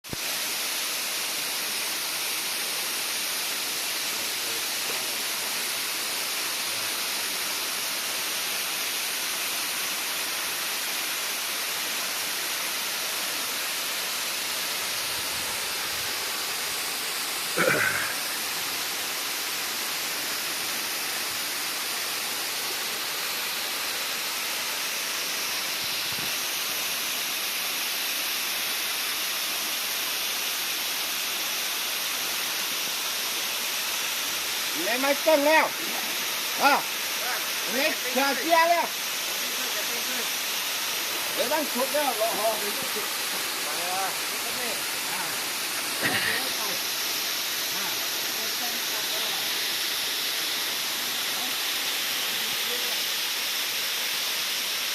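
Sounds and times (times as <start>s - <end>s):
waterfall rushing: 0.1s - 54.9s.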